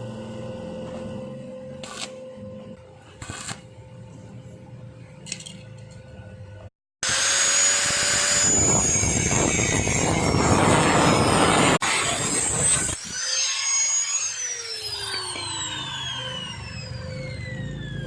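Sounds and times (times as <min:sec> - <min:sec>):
power tool running with whine: 0:07.0 - 0:18.0.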